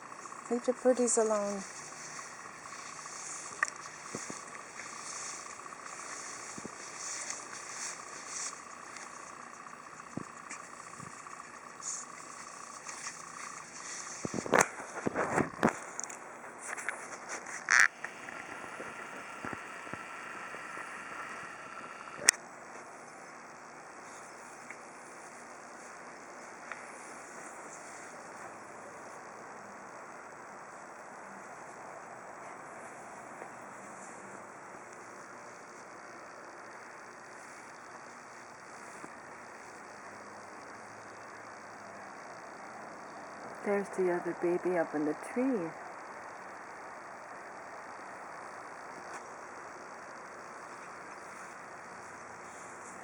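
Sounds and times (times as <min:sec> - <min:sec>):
faint high steady tone: 0:00.0 - 0:16.2
steady hiss: 0:00.0 - 0:44.4
insects chirring: 0:00.0 - 0:53.0.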